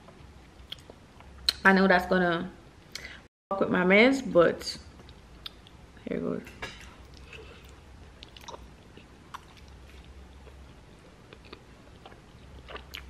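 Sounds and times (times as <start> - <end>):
person chewing soft food: 7.0 - 13.0.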